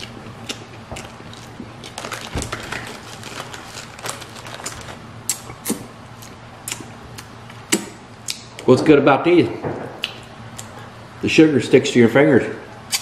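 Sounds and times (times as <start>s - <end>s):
person chewing marshmallow: 0.0s - 8.4s.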